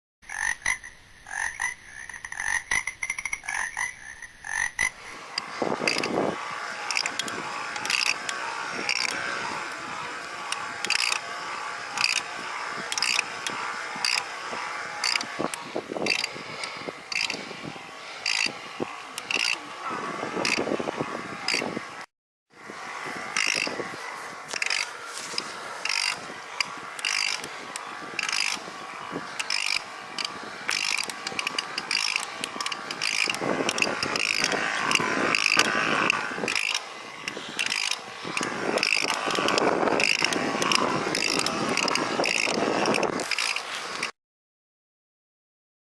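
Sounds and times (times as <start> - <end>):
bicycle drive clicking: 0.3 - 5.2, 27.0 - 27.5, 28.2 - 28.6, 29.4 - 35.7, 36.5 - 43.6.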